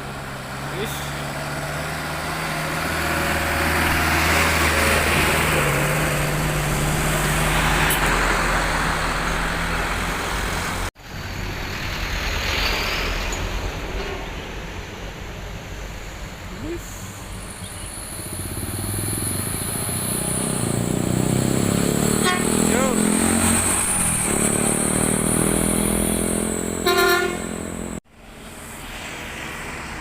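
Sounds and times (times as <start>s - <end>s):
heavy truck engine passing: 0.0s - 30.0s
traffic noise: 0.0s - 30.0s
tyre and road noise: 0.0s - 30.0s.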